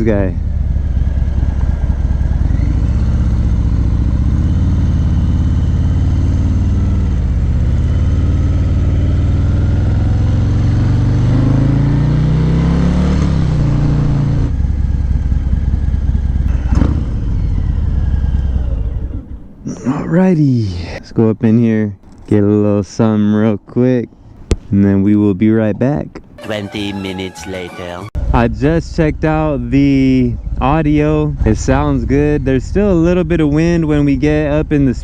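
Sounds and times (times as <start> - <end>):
motorcycle engine accelerating: 0.0 - 19.8, 28.2 - 35.0.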